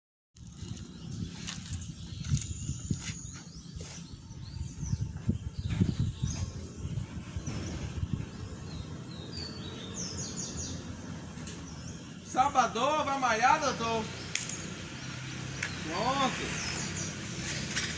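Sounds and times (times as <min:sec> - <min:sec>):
birds chirping: 0:00.4 - 0:17.9
low rumbling noise: 0:04.1 - 0:12.4.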